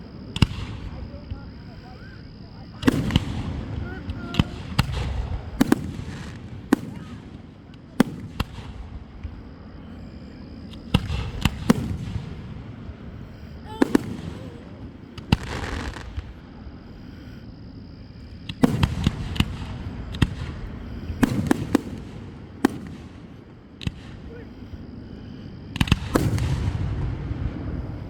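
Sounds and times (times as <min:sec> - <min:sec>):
hissing crackle of fireworks: 0:00.0 - 0:28.0
fireworks banging: 0:02.7 - 0:16.6, 0:18.3 - 0:24.4, 0:25.7 - 0:28.0.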